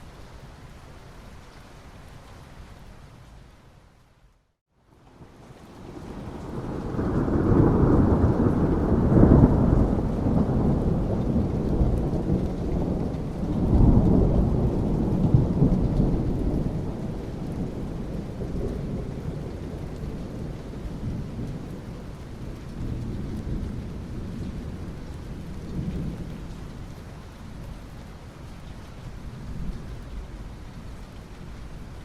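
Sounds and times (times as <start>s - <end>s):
steady rain: 0.0s - 32.0s
thunder rumbling: 5.8s - 26.9s.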